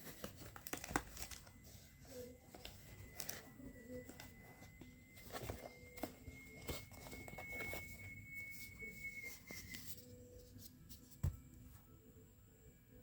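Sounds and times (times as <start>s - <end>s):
packaging rustling and clicking: 0.0s - 1.6s, 2.5s - 8.2s
thin high whine: 1.4s - 13.0s.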